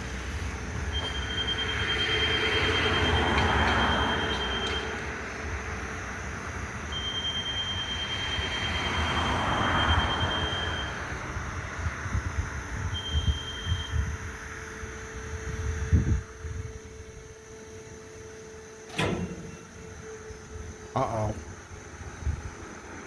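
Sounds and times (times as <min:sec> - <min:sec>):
train wheels rumbling on rail: 0:00.0 - 0:06.9
high wheel squeal: 0:00.9 - 0:05.4, 0:06.8 - 0:11.8.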